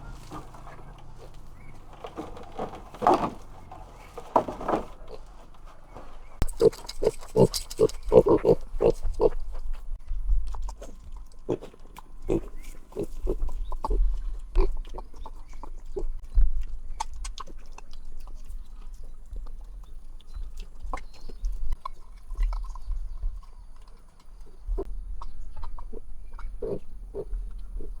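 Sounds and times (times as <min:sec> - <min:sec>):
animal grunts: 0:06.4 - 0:09.5, 0:10.7 - 0:15.2, 0:25.6 - 0:28.0.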